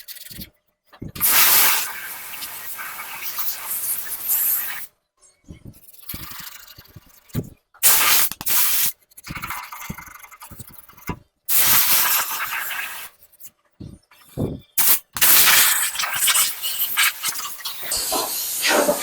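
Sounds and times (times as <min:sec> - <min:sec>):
compressed air hissing: 0:01.2 - 0:04.9, 0:07.8 - 0:08.9, 0:11.5 - 0:13.1, 0:14.8 - 0:19.0.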